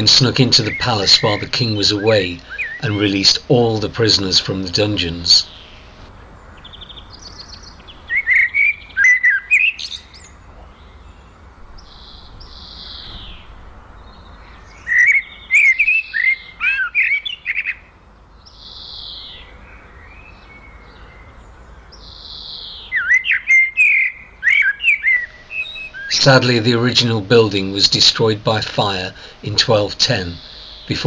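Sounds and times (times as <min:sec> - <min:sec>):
songbird chirping: 0:00.0 - 0:31.0.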